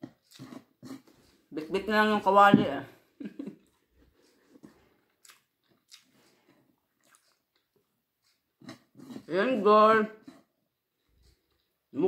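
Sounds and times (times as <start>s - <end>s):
person chewing food: 0.0s - 1.5s, 3.4s - 9.3s, 10.1s - 11.9s.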